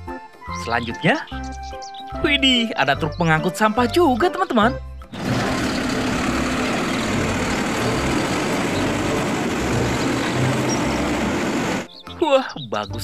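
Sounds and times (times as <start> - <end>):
truck engine low rumble: 5.1 - 11.9.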